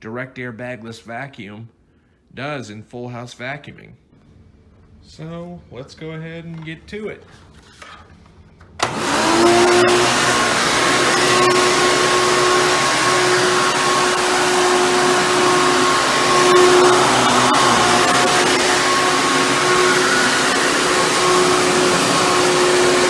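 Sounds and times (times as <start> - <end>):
vacuum cleaner motor whining: 8.8 - 23.0.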